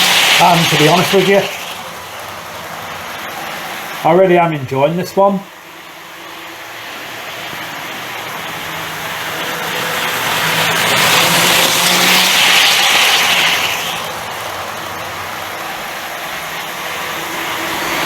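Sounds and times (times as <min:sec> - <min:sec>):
electric motor whirring: 0:00.0 - 0:04.0, 0:06.4 - 0:18.0
wheels rushing on rail: 0:00.0 - 0:18.0.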